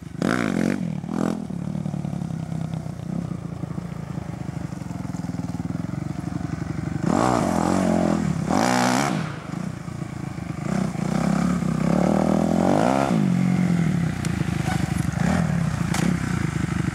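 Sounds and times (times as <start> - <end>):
motocross engine revving: 7.0 - 9.7, 10.6 - 16.5.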